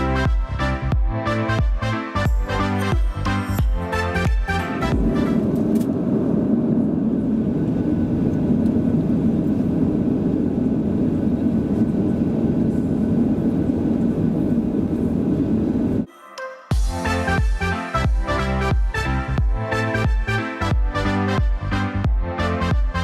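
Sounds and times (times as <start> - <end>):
aircraft cabin engine rumble: 2.9 - 16.1.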